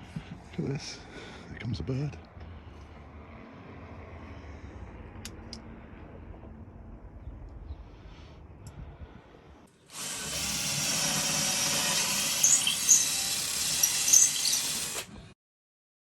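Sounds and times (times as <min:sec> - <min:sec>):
power tool whining: 0:09.8 - 0:15.4
short high squeaks: 0:11.9 - 0:15.0.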